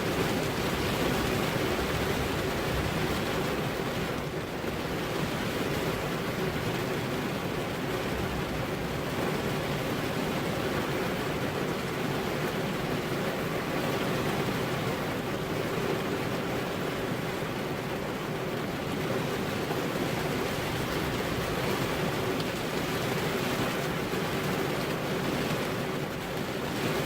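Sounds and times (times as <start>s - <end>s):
steady rainfall: 0.0s - 27.0s.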